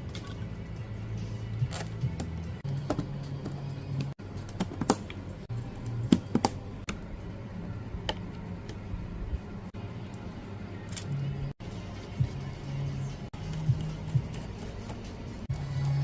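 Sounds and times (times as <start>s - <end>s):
low steady hum: 2.4s - 16.0s.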